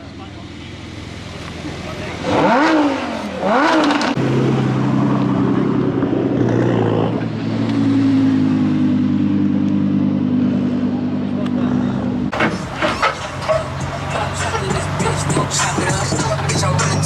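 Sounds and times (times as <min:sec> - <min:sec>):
car engine revving: 0:00.0 - 0:17.0
exhaust pops: 0:11.3 - 0:17.0.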